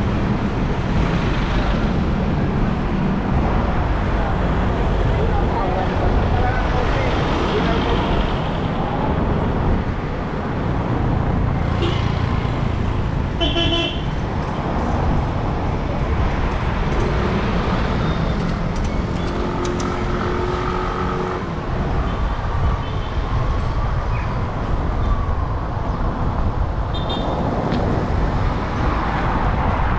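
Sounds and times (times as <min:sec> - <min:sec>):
street traffic rumble: 0:00.0 - 0:29.9
vehicle horn: 0:11.8 - 0:12.2, 0:13.4 - 0:14.2.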